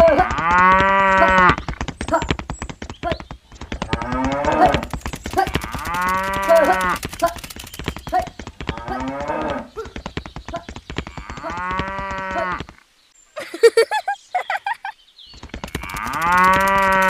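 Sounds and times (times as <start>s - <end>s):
rapid even clicking: 0.0s - 12.8s, 14.6s - 17.0s
cattle mooing: 15.8s - 17.0s.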